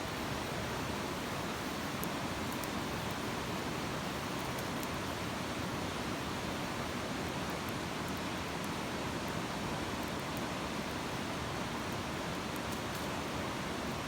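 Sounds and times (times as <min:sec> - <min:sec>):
campfire hissing: 0:00.0 - 0:06.9
faint fire crackles: 0:00.0 - 0:14.0.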